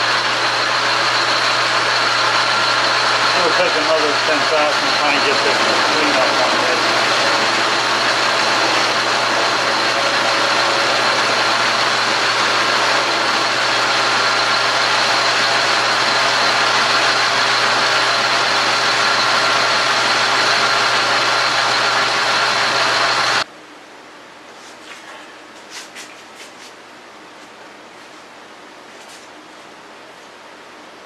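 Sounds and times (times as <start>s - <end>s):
metal lathe whining: 0.0s - 23.5s.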